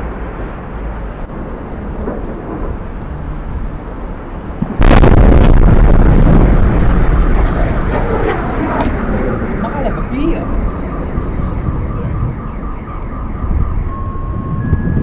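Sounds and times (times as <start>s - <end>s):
low rumble: 0.0s - 15.0s
loud explosion boom: 4.5s - 9.6s
faint high whistle falling in pitch: 6.6s - 9.0s.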